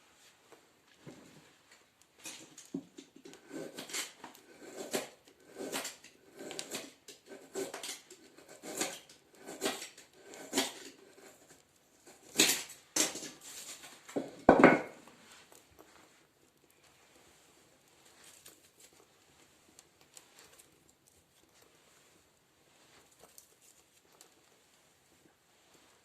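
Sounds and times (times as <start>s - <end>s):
paper and kindling rustling: 10.6s - 14.2s, 15.0s - 26.0s.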